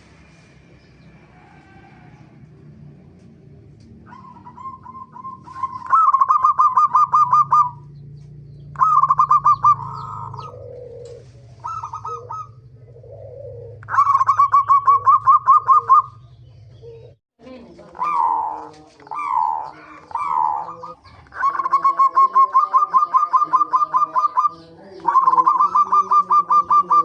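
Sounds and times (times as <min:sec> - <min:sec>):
dove cooing: 0:03.9 - 0:27.0.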